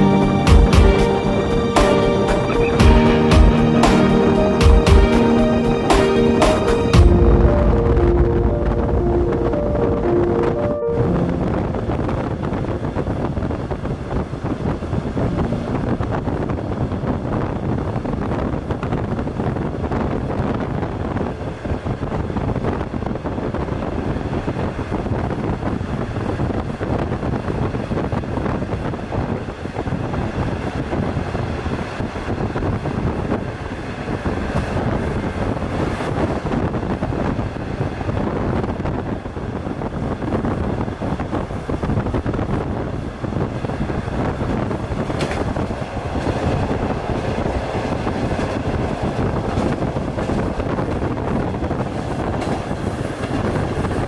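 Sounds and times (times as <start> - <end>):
train wheels rumbling and rattling: 12.0 - 54.0.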